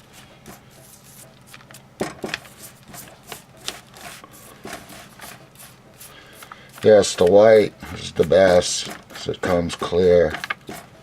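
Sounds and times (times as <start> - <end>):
short scratching strokes on stone: 4.0 - 11.0.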